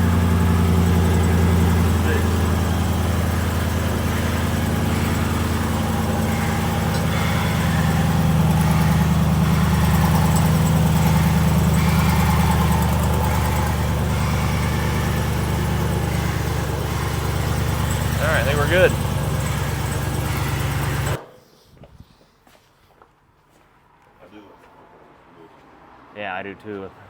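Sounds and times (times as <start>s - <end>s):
truck engine idling: 0.0s - 21.2s.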